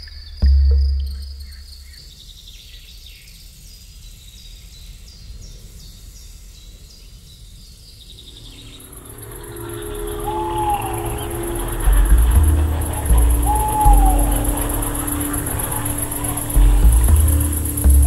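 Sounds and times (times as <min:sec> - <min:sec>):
steady low rumble: 0:00.0 - 0:02.3, 0:08.1 - 0:18.0
songbird singing high notes: 0:08.1 - 0:17.9
held musical tones: 0:08.5 - 0:18.0.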